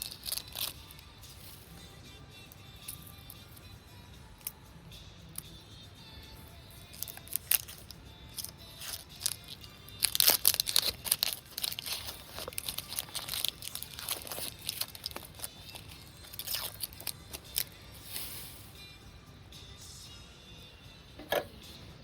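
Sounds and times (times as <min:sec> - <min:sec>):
crunching and crackling clicks: 0:00.0 - 0:01.0, 0:06.9 - 0:17.8
quiet background music: 0:00.0 - 0:22.0.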